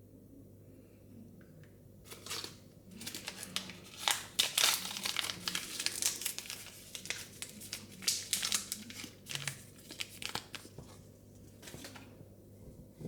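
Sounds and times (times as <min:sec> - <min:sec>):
plastic packaging crinkling: 0:02.1 - 0:10.8.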